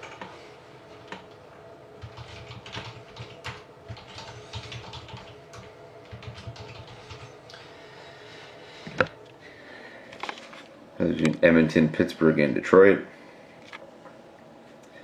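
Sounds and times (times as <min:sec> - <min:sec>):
typing on computer keyboard: 0:00.0 - 0:00.3, 0:02.0 - 0:07.3.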